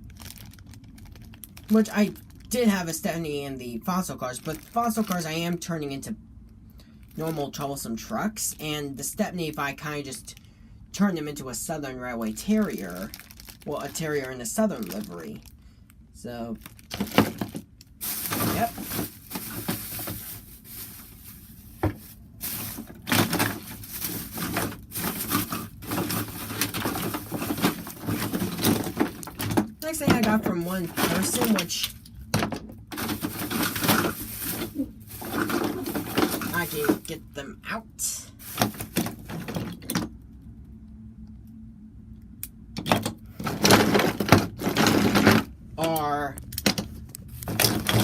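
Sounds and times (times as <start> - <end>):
toy trains and packaging handled: 0.0 - 6.1, 7.0 - 40.2, 42.8 - 48.0
low steady hum: 0.0 - 48.0
toy train trucks clattering: 22.5 - 32.0, 33.0 - 37.2, 47.4 - 48.0.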